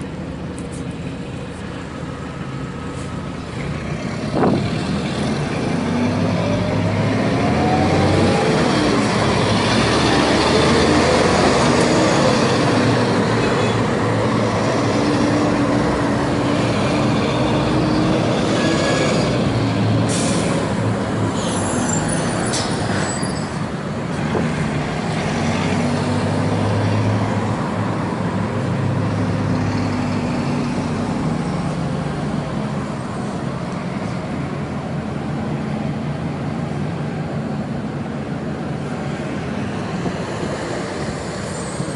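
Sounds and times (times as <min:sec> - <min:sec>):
bus diesel engine revving: 0:00.7 - 0:23.0.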